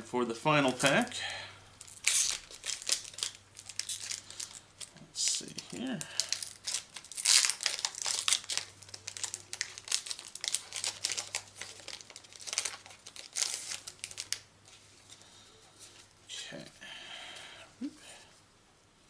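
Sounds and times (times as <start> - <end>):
foil wrapper tearing and crinkling: 1.8 - 14.5.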